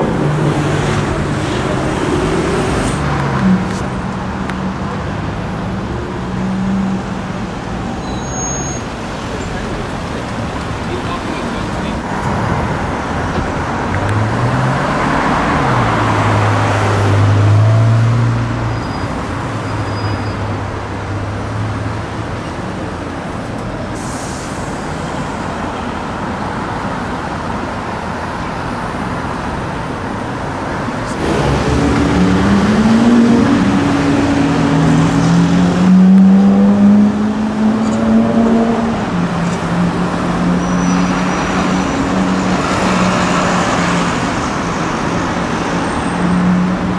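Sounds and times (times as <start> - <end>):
road noise: 0.0 - 46.9
car engine accelerating: 30.8 - 46.9.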